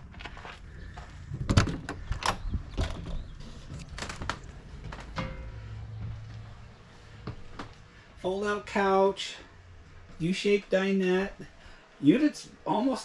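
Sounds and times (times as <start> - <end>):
knocks and clicks: 1.4 - 6.3.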